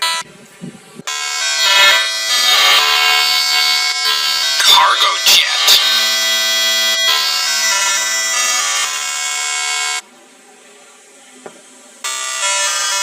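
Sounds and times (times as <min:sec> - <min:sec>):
buzzy horn-like sustained tone: 0:01.1 - 0:04.7, 0:05.4 - 0:10.0.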